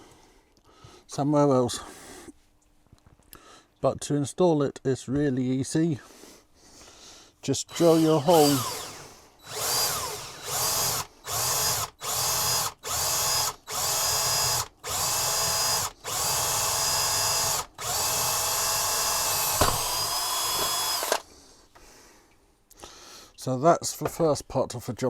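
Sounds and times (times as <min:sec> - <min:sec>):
electric drill boring: 0:07.7 - 0:21.3.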